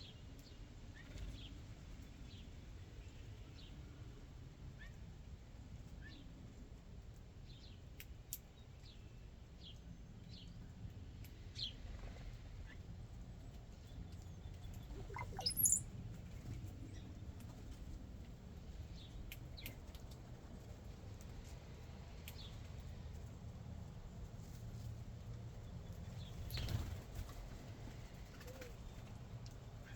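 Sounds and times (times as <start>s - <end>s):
songbirds chirping: 13.8s - 15.8s
upward sweeping bird call: 15.0s - 15.8s.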